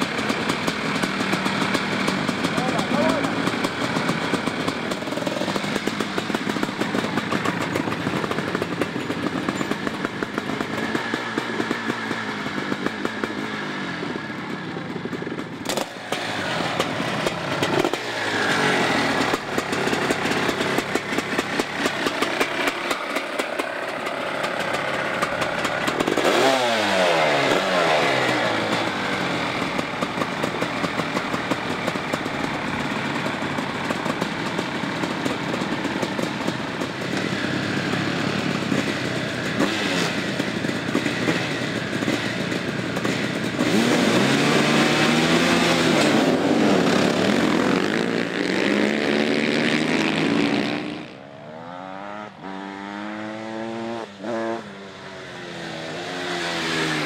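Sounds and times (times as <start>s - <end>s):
motorcycle engines idling: 0.0s - 52.6s, 54.0s - 57.0s
engine revving: 15.6s - 32.3s, 36.2s - 57.0s.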